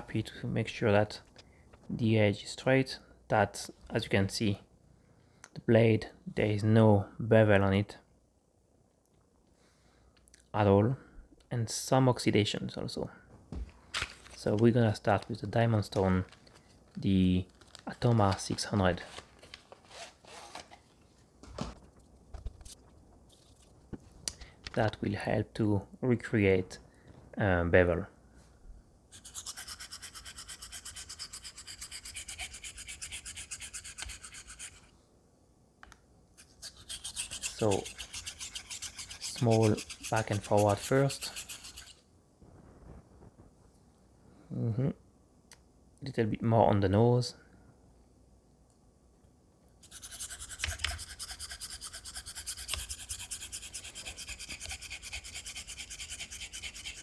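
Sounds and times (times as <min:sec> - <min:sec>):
razor blade rasping on honing plate: 0:29.2 - 0:34.9, 0:36.4 - 0:42.0, 0:49.8 - 0:57.0.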